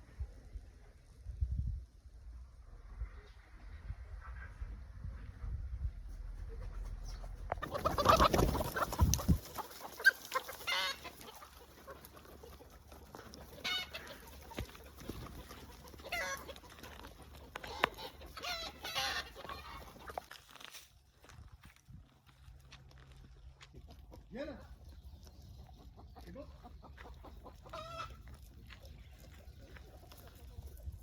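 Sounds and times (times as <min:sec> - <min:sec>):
chickens clucking: 0:06.1 - 0:20.5, 0:23.2 - 0:31.0.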